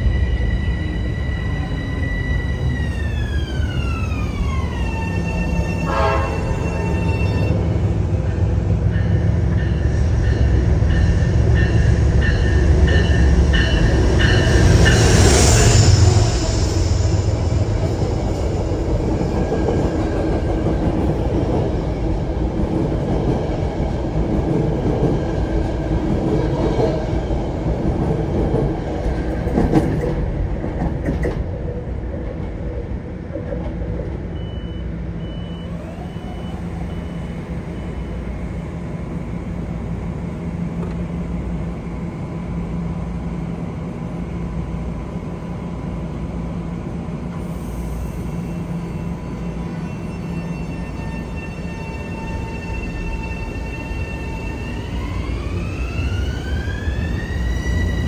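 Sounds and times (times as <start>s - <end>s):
train wheels rumbling and clattering: 0.0s - 34.5s, 38.3s - 58.0s
high-pitched wheel squeal: 47.6s - 55.2s.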